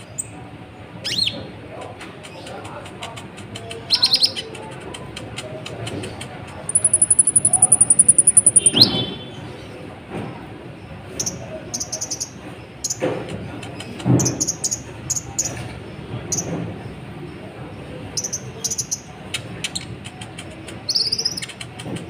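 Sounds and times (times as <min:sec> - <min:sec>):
bird singing high trills and chirps: 0:06.7 - 0:09.3.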